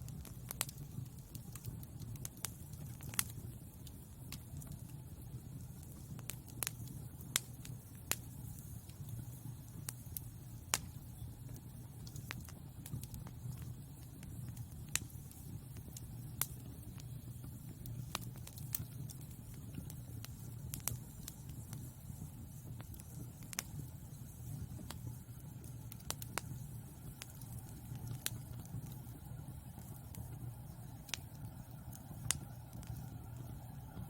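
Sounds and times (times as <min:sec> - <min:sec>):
burning logs popping and crackling: 0:00.0 - 0:34.0
low rumble of flames: 0:00.0 - 0:34.0.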